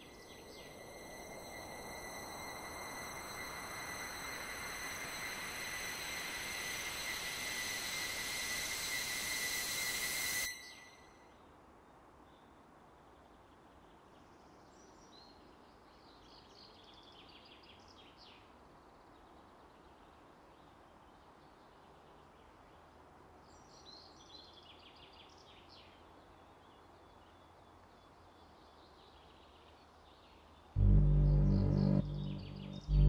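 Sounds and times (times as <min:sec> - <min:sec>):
bird chirping: 0:30.8 - 0:33.0.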